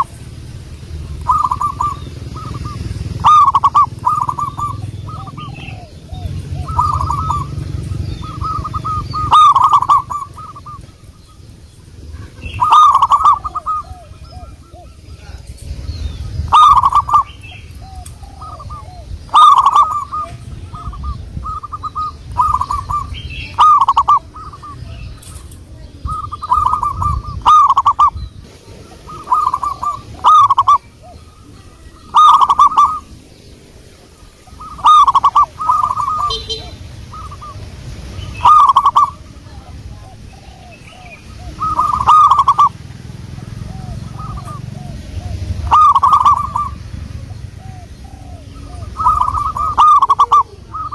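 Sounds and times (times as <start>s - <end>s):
dove cooing: 0.0s - 50.9s
fainter dove calls: 0.0s - 50.9s.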